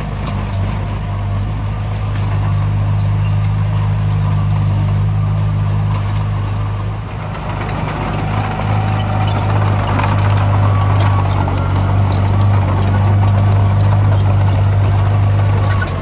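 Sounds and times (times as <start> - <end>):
diesel engine running: 0.0 - 16.0
clicking rattle: 7.3 - 16.0.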